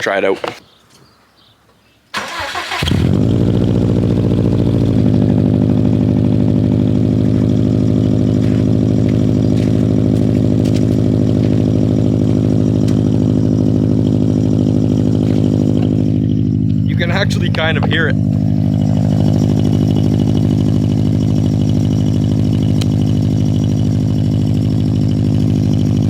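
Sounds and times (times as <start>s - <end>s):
vehicle engine idling: 2.2s - 26.0s.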